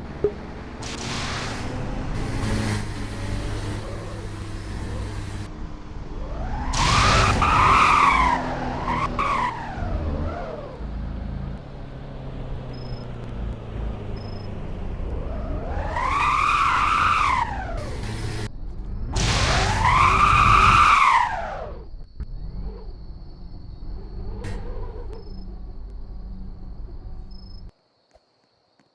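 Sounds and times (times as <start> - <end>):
car tyres squealing: 0.5 - 12.0, 12.6 - 18.5, 19.2 - 23.0.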